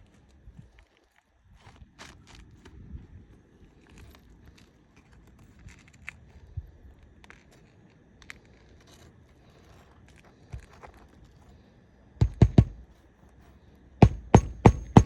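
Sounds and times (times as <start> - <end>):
taps and scrapes of roof shingles: 3.8 - 15.0.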